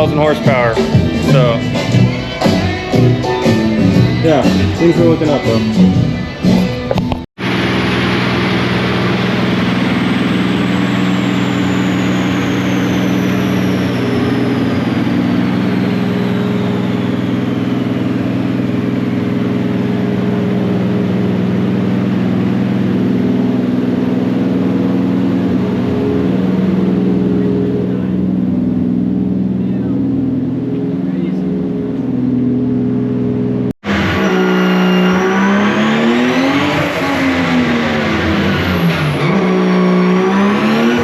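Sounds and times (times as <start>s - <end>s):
car engine running: 0.0s - 41.0s
faint high whine: 8.7s - 22.5s.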